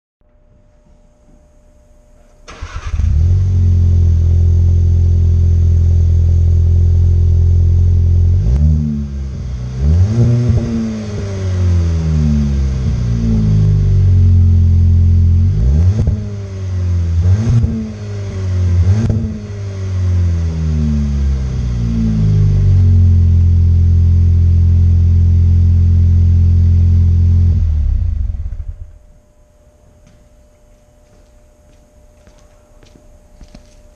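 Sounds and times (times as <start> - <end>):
car engine starting: 2.4 - 29.2
car engine revving: 2.5 - 29.1
car engine idling: 2.5 - 29.3.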